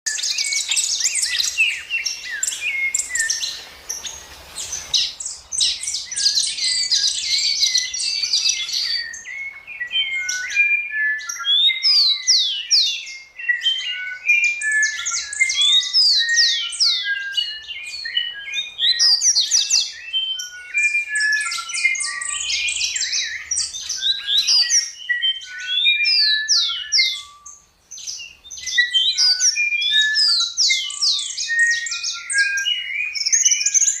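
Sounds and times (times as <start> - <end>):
birds chirping and singing: 0.1 - 34.0.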